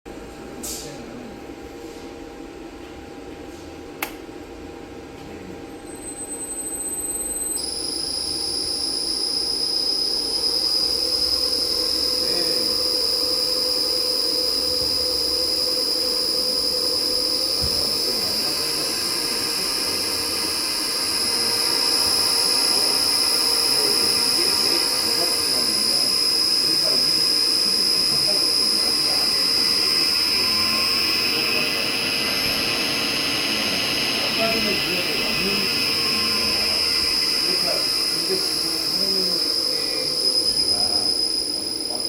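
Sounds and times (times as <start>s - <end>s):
high-pitched inverter whine: 0.1s - 42.0s
electric motor running: 10.2s - 42.0s.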